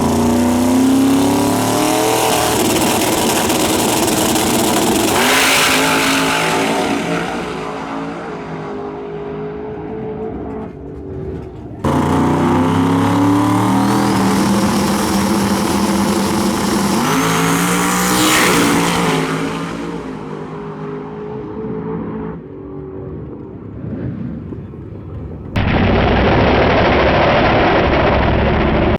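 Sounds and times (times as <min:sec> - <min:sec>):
drag car engine running hard: 0:00.0 - 0:22.6, 0:25.5 - 0:28.9
car passing by close: 0:02.5 - 0:22.5.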